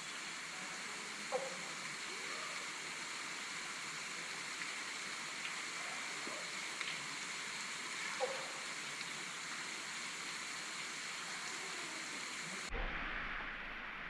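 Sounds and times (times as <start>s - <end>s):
waterfall rushing: 8.0s - 14.0s
low rumble: 12.7s - 14.0s.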